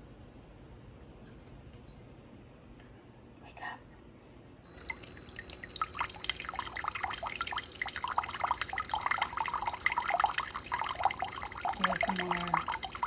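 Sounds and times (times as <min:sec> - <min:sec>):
hot water dripping into cup: 0:04.7 - 0:13.0.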